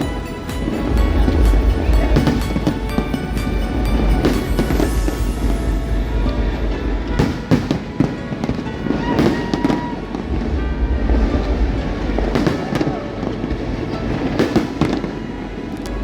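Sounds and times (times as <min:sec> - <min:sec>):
background music: 0:00.0 - 0:16.0
fireworks bangs and crackles: 0:00.0 - 0:16.0.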